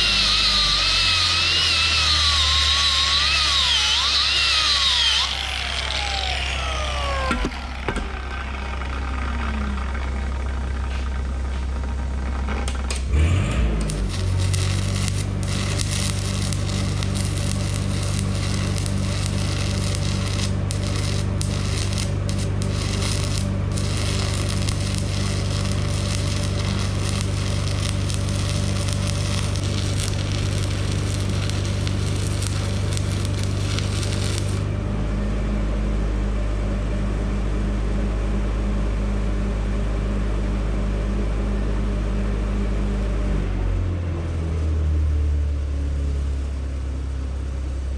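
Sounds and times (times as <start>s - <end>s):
welding arc crackling: 0.0s - 6.5s, 12.7s - 34.8s
welding machine humming: 0.0s - 8.2s, 12.7s - 34.8s.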